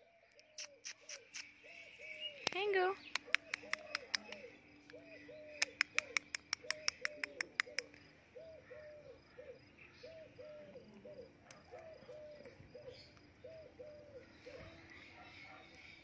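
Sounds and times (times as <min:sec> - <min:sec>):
bird cooing: 0:03.2 - 0:15.7.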